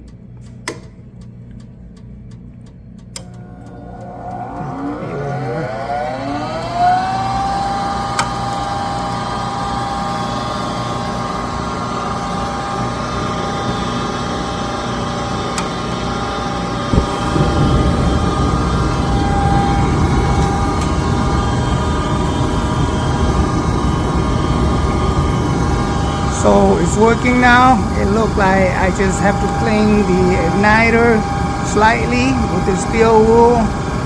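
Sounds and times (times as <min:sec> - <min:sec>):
furnace motor whine and hum: 0:00.0 - 0:34.0
burner rushing: 0:16.2 - 0:34.0.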